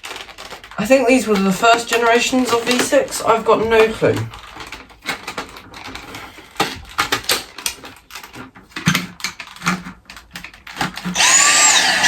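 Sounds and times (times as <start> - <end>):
plastic vacuum parts clicking: 0.0 - 12.0
vacuum motor high whine: 11.2 - 12.0.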